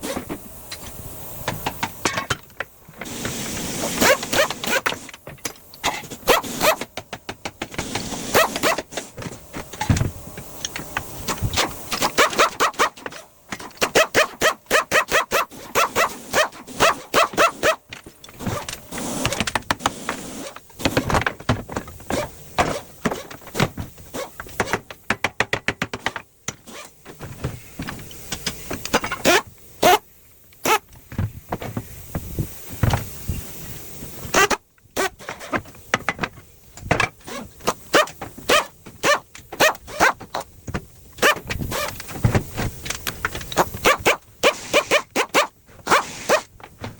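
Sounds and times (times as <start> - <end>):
tool noise: 0.0 - 30.0, 34.2 - 46.9
metal knocks and clanks: 9.1 - 13.9.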